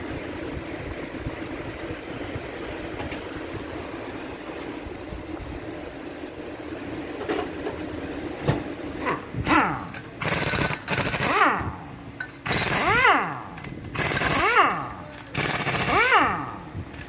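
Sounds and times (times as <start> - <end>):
mechanical hum: 0.0 - 17.0
pneumatic impact wrench bursts: 9.0 - 17.0.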